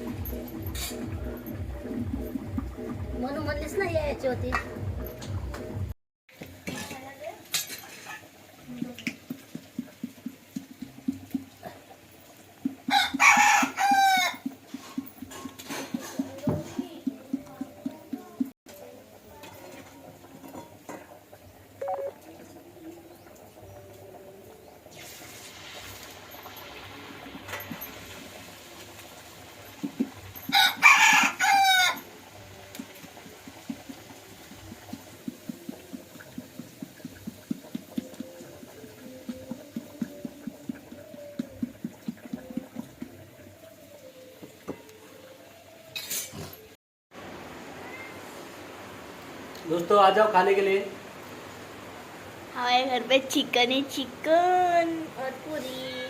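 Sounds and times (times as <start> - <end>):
rooster crowing: 12.9 - 14.5, 30.5 - 32.1.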